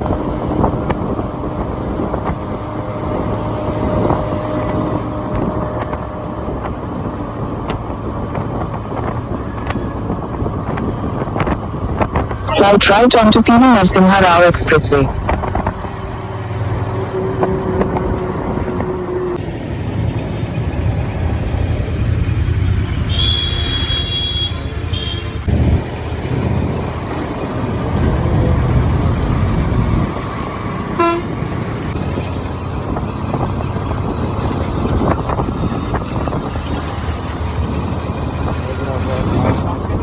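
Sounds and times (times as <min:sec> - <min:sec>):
motorcycle riding at speed: 0:00.0 - 0:12.5, 0:15.1 - 0:23.9, 0:25.0 - 0:40.0
vehicle horn honking: 0:23.1 - 0:25.4, 0:31.0 - 0:31.4.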